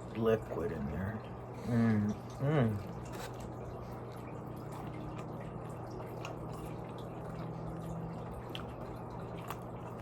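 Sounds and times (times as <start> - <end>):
steady low hum: 0.0 - 10.0
wet chewing sounds: 2.0 - 10.0.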